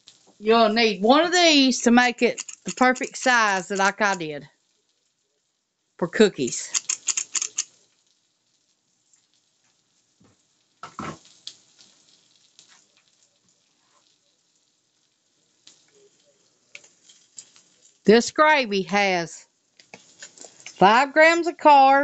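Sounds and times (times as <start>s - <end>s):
ham frying in a skillet: 0.0s - 22.0s.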